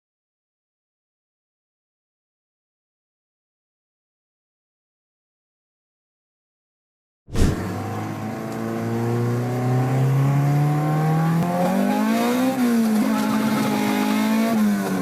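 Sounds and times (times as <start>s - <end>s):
car engine accelerating hard: 7.6s - 15.0s.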